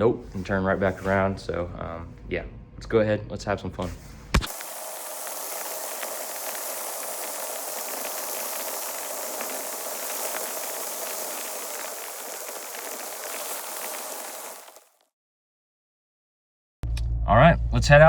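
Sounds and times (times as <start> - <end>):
steady hiss: 4.0 - 14.9
faint scattered crackles: 4.4 - 15.1.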